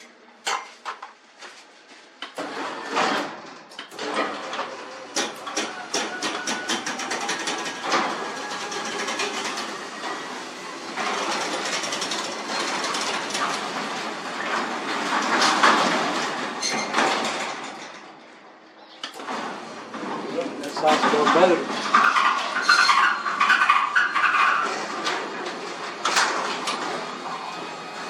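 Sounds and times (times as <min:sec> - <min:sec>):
garage door rollers clicking: 0:02.2 - 0:28.0
garage door running: 0:02.2 - 0:28.0.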